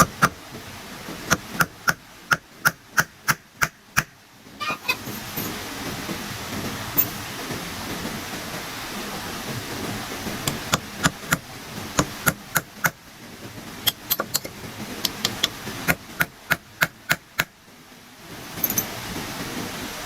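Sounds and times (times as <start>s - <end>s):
steady background hiss: 0.0s - 20.0s
hand tool striking wood: 1.3s - 4.2s, 10.5s - 11.4s, 12.0s - 13.0s, 13.9s - 17.5s.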